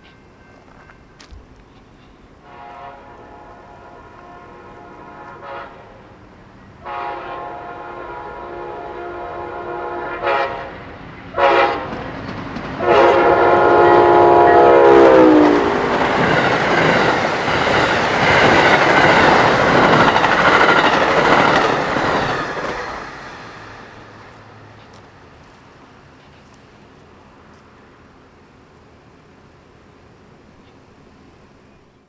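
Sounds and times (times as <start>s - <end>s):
locomotive horn blasts: 2.4s - 6.0s, 6.8s - 12.0s, 12.8s - 15.9s.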